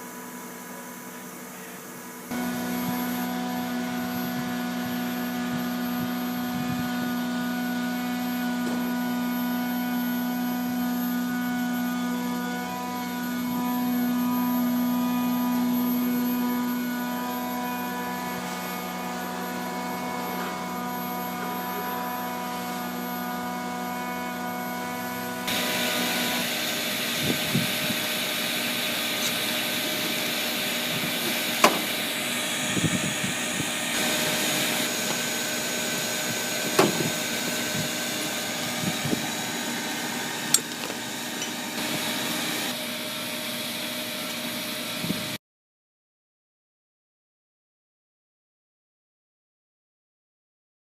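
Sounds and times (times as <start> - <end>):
vacuum motor running: 0.0 - 45.4
knocks and scraping in duct: 31.1 - 32.0, 36.6 - 37.9.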